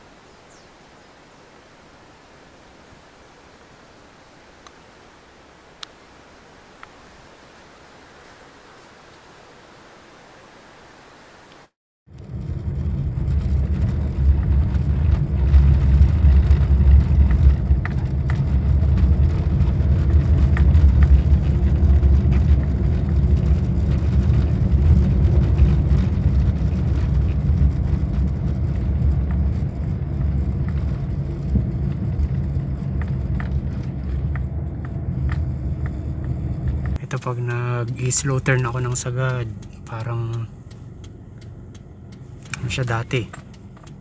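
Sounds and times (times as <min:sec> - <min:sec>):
car engine and road noise: 0:12.1 - 0:44.0
faint clicks: 0:25.0 - 0:44.0.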